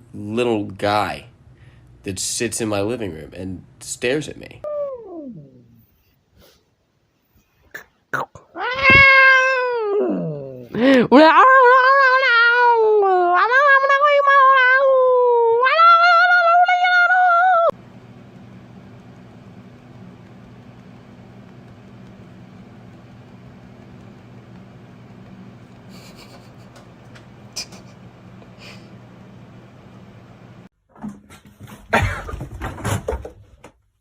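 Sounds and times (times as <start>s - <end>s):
steady low hum: 0.0s - 6.4s, 17.7s - 30.7s
cat yowling: 8.6s - 10.6s, 11.4s - 17.7s.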